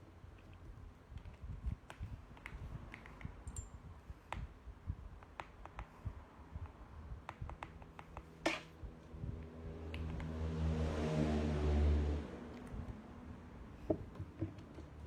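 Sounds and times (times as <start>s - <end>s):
vehicle engine revving: 9.9s - 12.5s.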